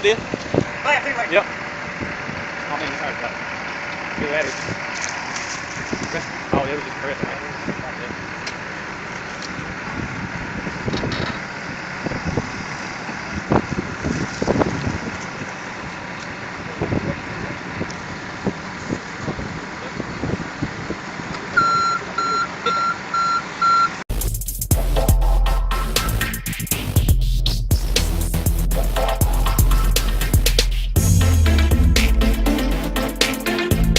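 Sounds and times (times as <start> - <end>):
heavy truck engine running: 0.0 - 24.4, 25.0 - 33.9
backup alarm beeping: 21.6 - 24.0.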